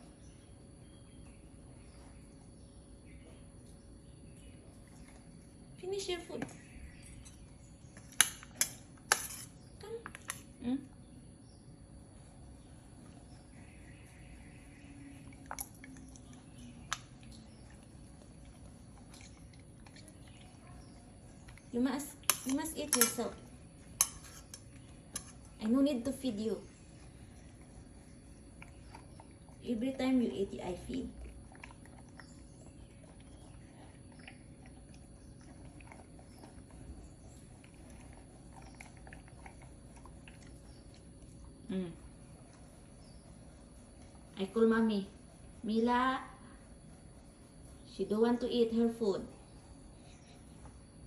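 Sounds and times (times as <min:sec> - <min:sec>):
puppy chewing food: 0:14.4 - 0:25.6, 0:26.6 - 0:44.4.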